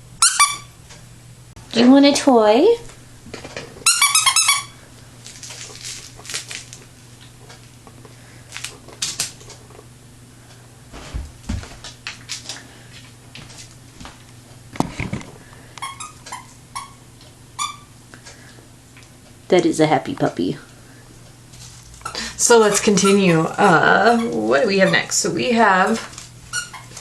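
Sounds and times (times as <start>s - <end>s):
squeaky toy squeaking: 0.2s - 0.7s, 3.8s - 4.8s, 15.8s - 17.0s, 17.6s - 17.9s, 22.6s - 25.1s
toy crinkling: 3.8s - 7.7s, 8.4s - 9.7s.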